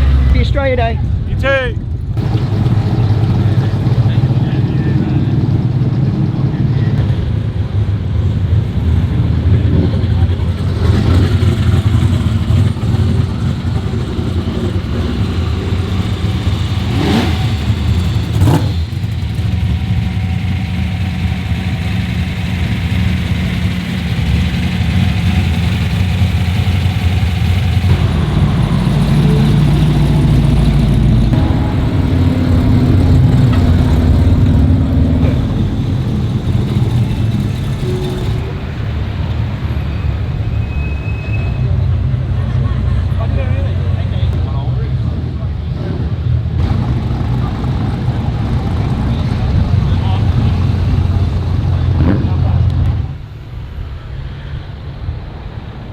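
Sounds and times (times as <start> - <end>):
car engines rumbling: 0.0 - 55.9
engine rev blips: 10.5 - 42.0.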